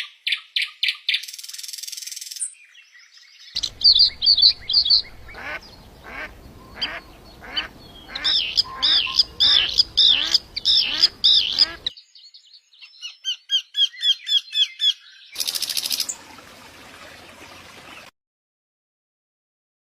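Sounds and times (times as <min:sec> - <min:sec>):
bird harsh calls: 0:03.5 - 0:12.0
short high bird chirps: 0:03.6 - 0:11.8
high buzzing bird trill: 0:03.6 - 0:11.9.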